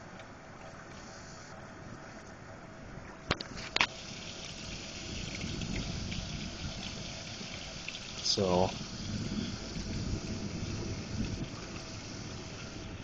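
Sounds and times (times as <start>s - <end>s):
heavy rain hissing: 3.5s - 13.0s.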